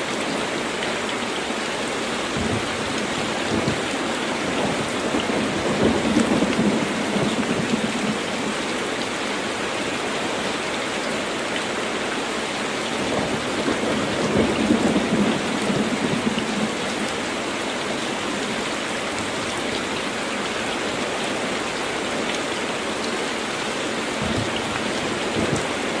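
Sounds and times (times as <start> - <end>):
heavy rain on a tin roof: 0.0 - 26.0
low rolls of thunder: 2.3 - 8.5, 13.0 - 17.0, 24.2 - 26.0.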